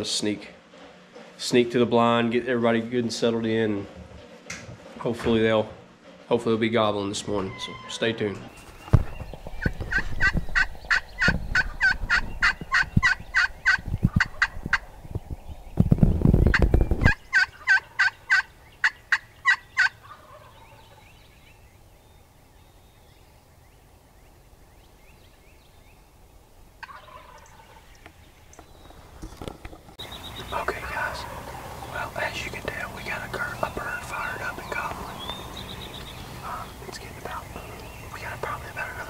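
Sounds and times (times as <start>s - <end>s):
turkey gobbling: 9.6s - 14.9s, 16.5s - 21.0s, 26.8s - 28.1s, 30.0s - 36.9s.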